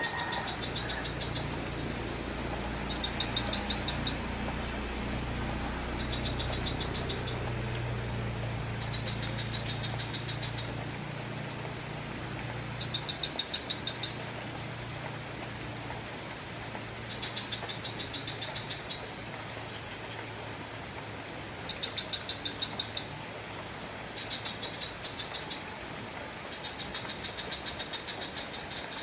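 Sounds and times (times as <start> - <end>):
steady rain falling: 0.0 - 29.0
rapid high-pitched chirping call: 2.9 - 4.2.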